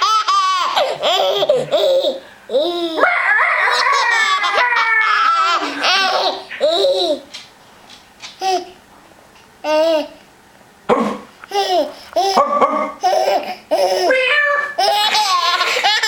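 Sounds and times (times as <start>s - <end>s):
baby laughing and squealing: 0.0s - 3.0s, 3.6s - 7.3s, 11.6s - 16.0s.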